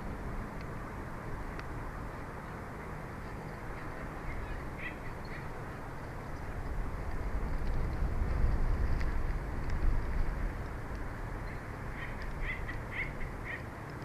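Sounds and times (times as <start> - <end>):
wind on microphone: 3.5 - 13.6.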